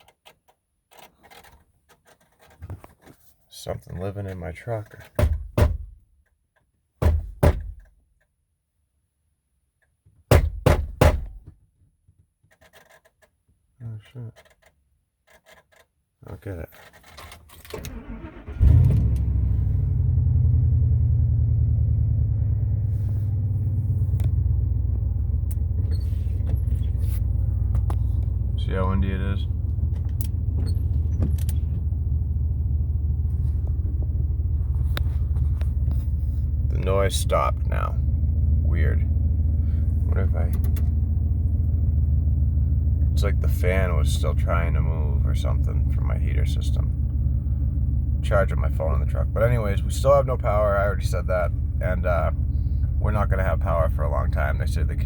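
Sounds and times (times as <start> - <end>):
loud dull knocks from truck: 10.3 - 11.4.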